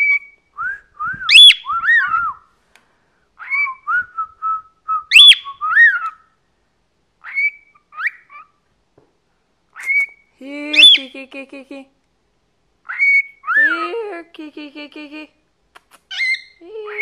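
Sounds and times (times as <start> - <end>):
cockatiel whistling: 0.0 - 2.4, 3.4 - 6.2, 9.8 - 10.2, 12.9 - 13.8.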